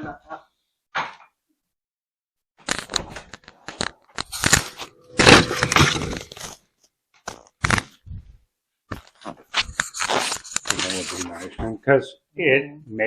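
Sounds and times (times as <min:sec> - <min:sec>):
scraping and crunching handling noises: 0:02.6 - 0:08.0, 0:08.9 - 0:11.6.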